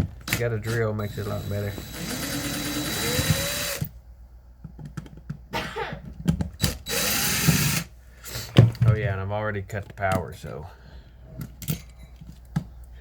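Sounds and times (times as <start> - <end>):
power drill motor whining: 0.6 - 3.9, 6.6 - 8.5.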